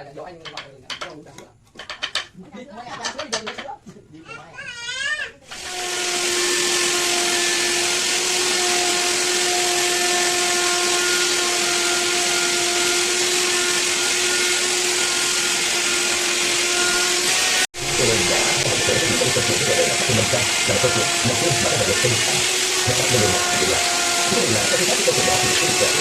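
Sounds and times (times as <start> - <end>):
power tool motor whining: 5.5 - 26.0
voices: 17.8 - 26.0.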